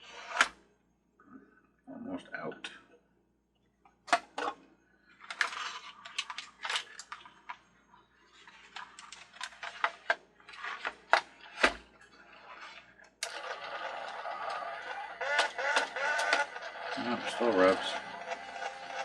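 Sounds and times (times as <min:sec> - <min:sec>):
plastic toy clicks and knocks: 0:05.3 - 0:07.6, 0:13.2 - 0:19.0
carousel rubbing at hub: 0:12.1 - 0:19.0
toy carousel running: 0:12.4 - 0:19.0.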